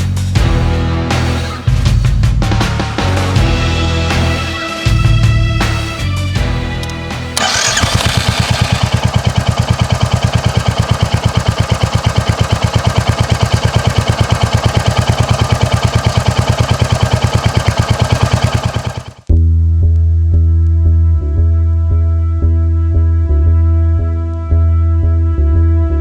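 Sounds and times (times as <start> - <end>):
music: 0.0 - 8.2, 19.3 - 26.0
motorcycle engine idling: 6.8 - 19.3
motorcycle engine starting: 6.8 - 19.3.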